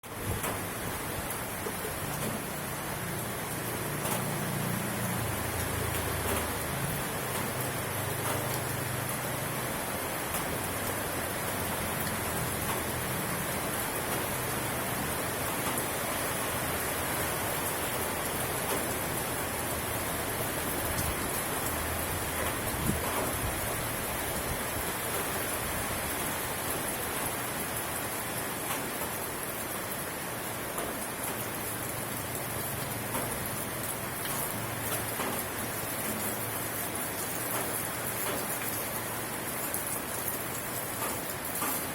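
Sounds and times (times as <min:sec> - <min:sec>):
raindrop ticks: 0:00.0 - 0:24.1, 0:25.0 - 0:26.4, 0:28.6 - 0:30.0, 0:30.6 - 0:41.9
steady rainfall: 0:00.0 - 0:41.9.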